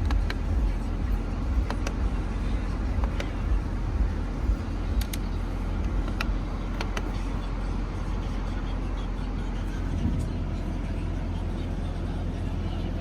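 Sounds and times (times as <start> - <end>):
car engine idling: 0.0 - 13.0
sharp clicks: 5.0 - 7.2.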